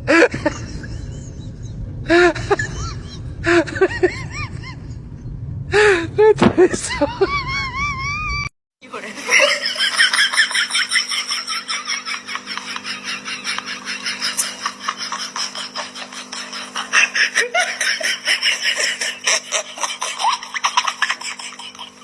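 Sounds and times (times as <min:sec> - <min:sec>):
faint steady hum: 0:08.8 - 0:22.0
rapid laughter: 0:09.0 - 0:22.0.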